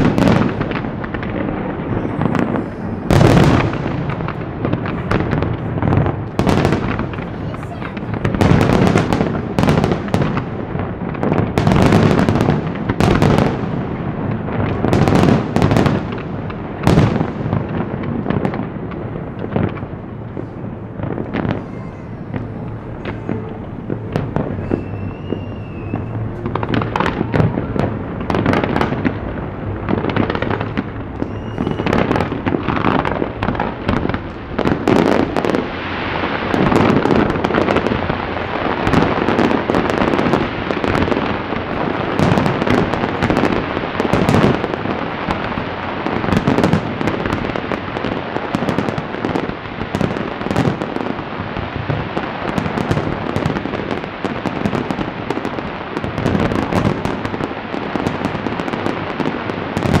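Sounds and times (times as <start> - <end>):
rising firework whistle: 0.0 - 10.5, 19.4 - 47.4
firework shell bursts and crackling: 0.0 - 60.0.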